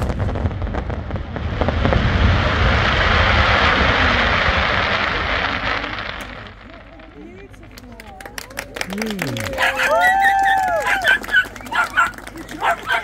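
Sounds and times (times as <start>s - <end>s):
fireworks hissing rush: 0.0s - 8.0s.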